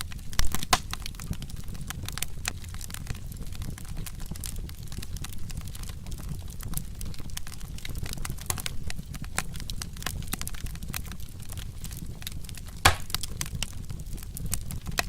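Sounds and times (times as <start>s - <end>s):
low rumble of flames: 0.0s - 15.0s
wood fire crackling: 0.0s - 15.0s
loud pop from fire: 0.3s - 1.2s, 12.2s - 13.7s.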